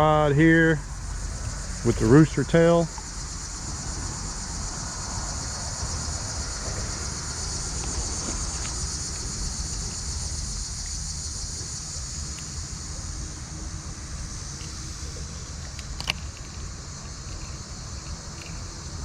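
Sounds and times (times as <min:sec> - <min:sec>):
crickets chirping drone: 0:00.0 - 0:19.0
low steady rumble: 0:00.0 - 0:19.0
faint ticks: 0:12.2 - 0:12.6, 0:14.5 - 0:14.9, 0:15.6 - 0:19.0.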